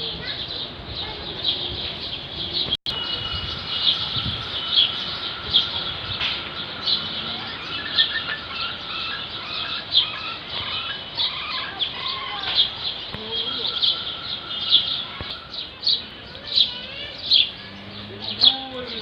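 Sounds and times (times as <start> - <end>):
birds chirping and calling: 0.0 - 19.0
sharp high bird calls: 2.9 - 17.8.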